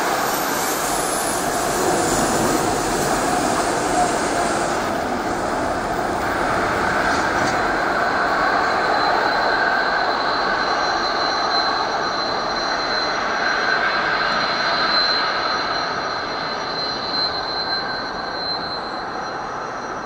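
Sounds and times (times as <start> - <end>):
freight train wheels rolling on rail: 0.0 - 13.1
thin high whine: 0.0 - 20.0.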